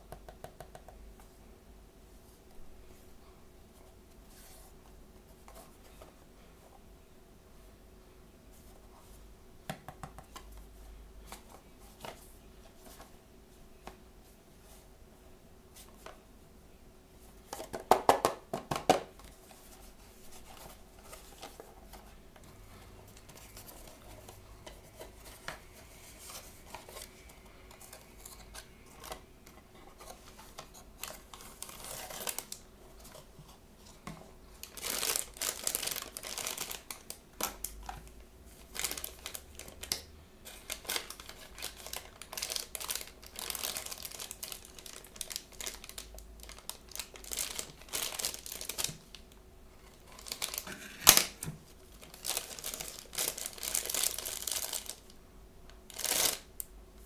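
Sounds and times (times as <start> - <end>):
plastic wrapper crinkling and tearing: 23.0 - 33.3, 34.6 - 55.2, 55.9 - 56.6.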